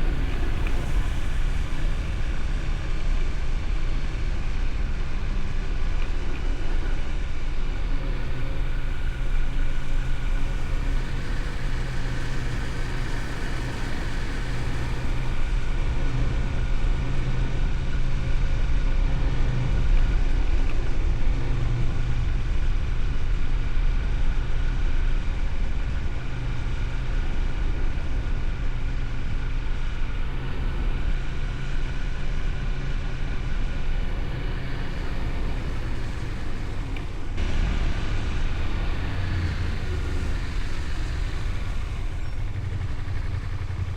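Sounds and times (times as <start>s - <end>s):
motorcycle engine cruising: 7.8s - 17.8s, 26.1s - 43.9s.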